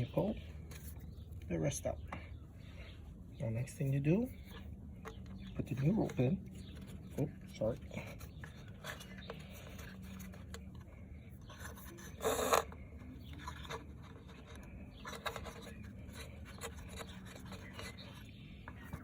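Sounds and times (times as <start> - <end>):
rope rubbing and scraping in pulley: 11.4 - 18.3.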